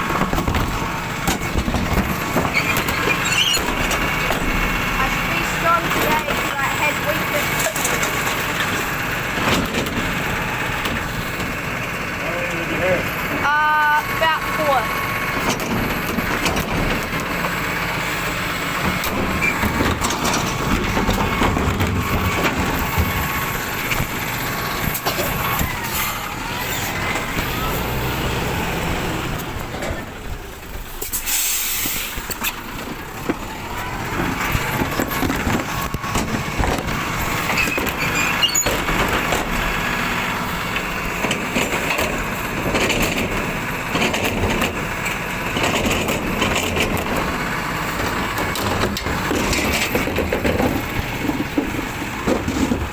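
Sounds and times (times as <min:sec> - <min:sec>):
rubbish truck engine running: 0:00.0 - 0:52.9
air brake hiss: 0:31.0 - 0:32.2.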